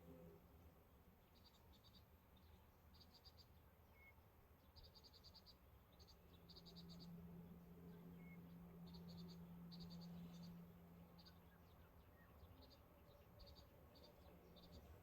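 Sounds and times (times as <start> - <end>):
low steady hum: 0.0 - 1.3, 5.6 - 15.0.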